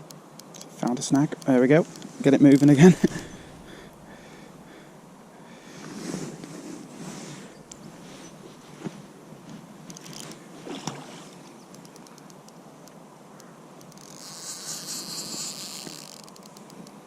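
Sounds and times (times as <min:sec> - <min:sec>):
fishing reel ticking: 0:13.8 - 0:16.9
fishing reel buzzing: 0:13.9 - 0:16.6.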